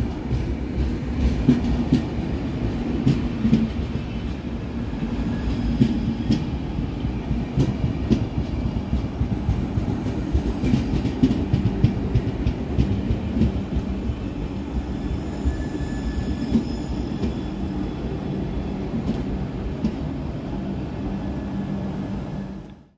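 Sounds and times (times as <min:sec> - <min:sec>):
wheels rumbling on rail: 0:00.0 - 0:22.9
faint high squeal: 0:14.9 - 0:18.3.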